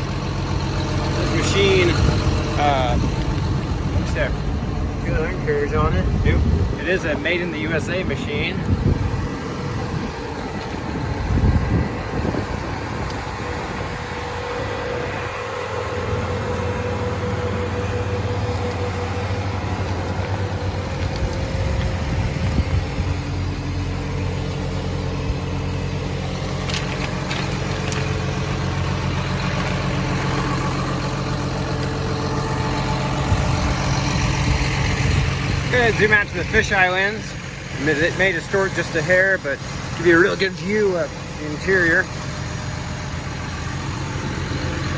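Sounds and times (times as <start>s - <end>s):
diesel engine idling: 0.0s - 44.9s.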